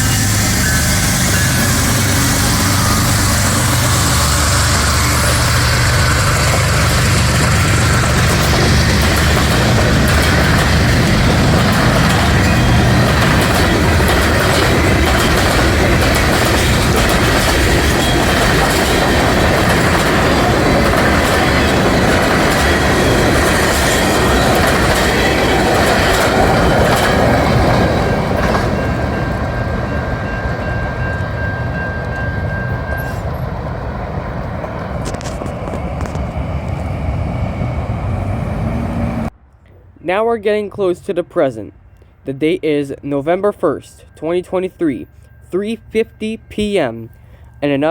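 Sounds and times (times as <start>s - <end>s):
thin wheel squeal: 0.0s - 9.0s
train wheels clacking over rails: 0.0s - 39.3s
low train engine rumble: 0.0s - 40.5s, 41.2s - 47.9s.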